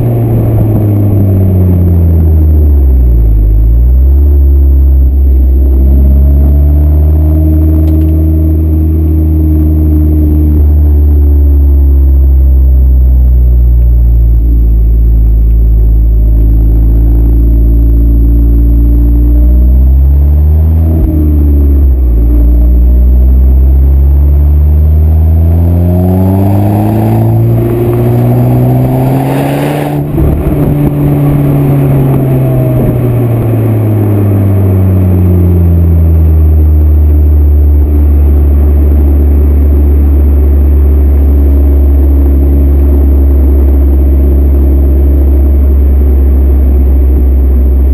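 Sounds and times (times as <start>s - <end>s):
car exhaust idling and revving: 0.0s - 47.9s.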